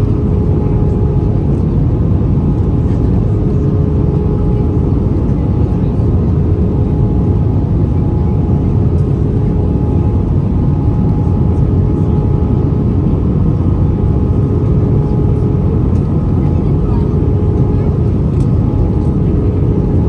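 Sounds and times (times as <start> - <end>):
aircraft engines droning: 0.0 - 20.0.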